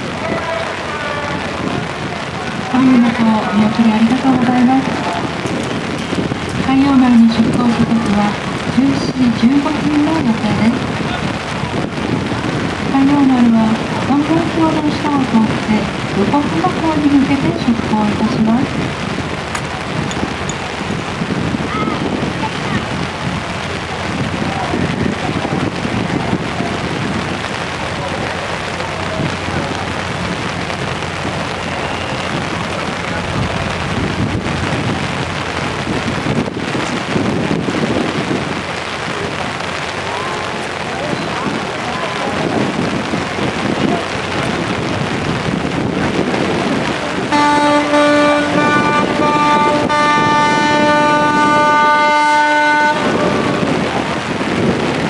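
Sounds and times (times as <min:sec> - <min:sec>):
faint crowd voices: 0:00.0 - 0:55.0
wind noise on microphone: 0:00.0 - 0:55.0
ship's whistle long blast: 0:47.3 - 0:53.9.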